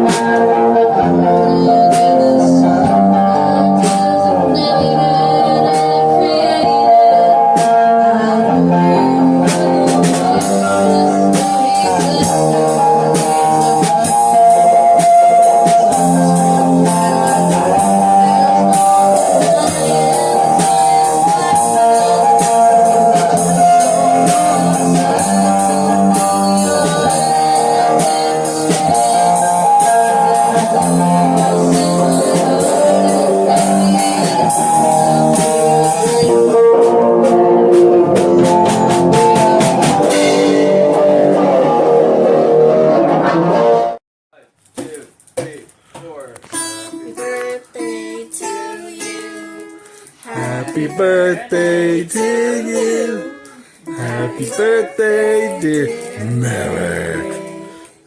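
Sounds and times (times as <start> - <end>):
rock guitar: 0.0 - 44.0, 46.4 - 58.0
drum beat: 30.2 - 41.2, 44.8 - 46.8, 50.3 - 57.8.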